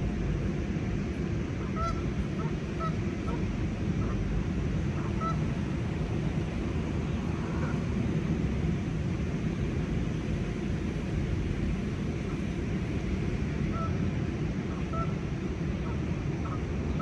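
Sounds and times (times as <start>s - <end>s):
low outdoor rumble: 0.0s - 17.0s
faint goose honks: 1.6s - 4.2s, 5.0s - 5.4s, 13.7s - 14.0s, 14.7s - 15.1s.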